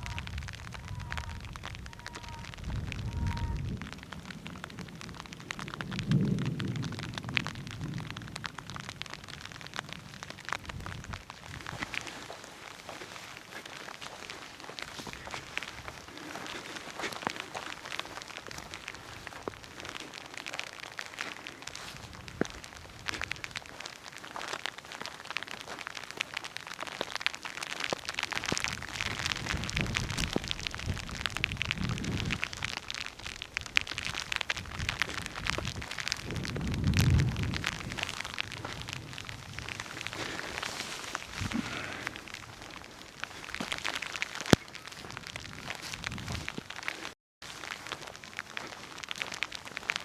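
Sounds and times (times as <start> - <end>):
raindrops ticking: 0.0 - 50.0.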